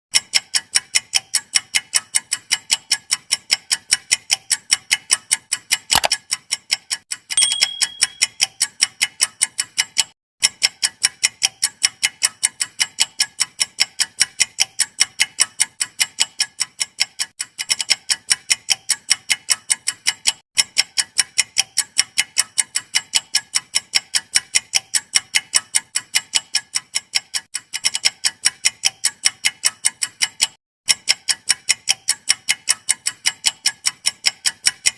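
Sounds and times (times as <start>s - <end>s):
clock ticking: 0.1s - 34.9s
short high tone: 7.4s - 8.2s.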